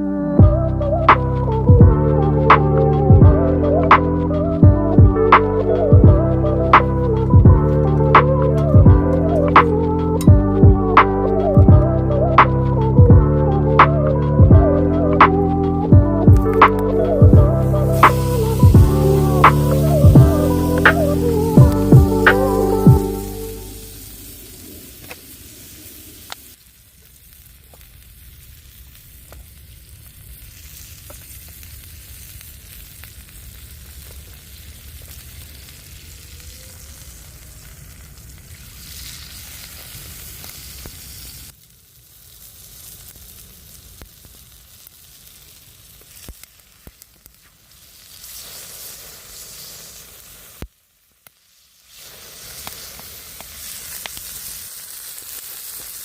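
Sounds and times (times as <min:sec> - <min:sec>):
food sizzling in a pan: 0:05.4 - 0:56.0
small pops and crackles: 0:24.3 - 0:56.0.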